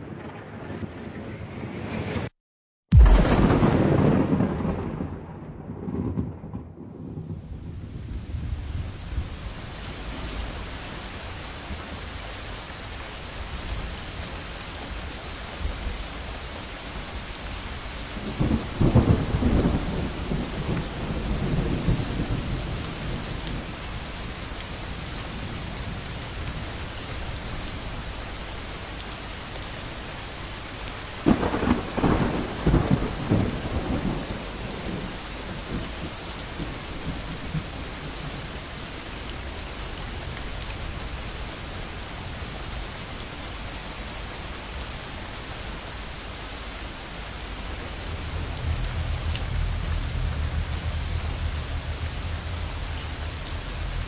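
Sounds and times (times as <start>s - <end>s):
steady rain: 0.0s - 2.3s, 2.9s - 54.0s
thunder rolling: 0.0s - 2.3s, 2.9s - 10.6s, 18.1s - 26.7s, 31.2s - 38.6s, 47.3s - 54.0s.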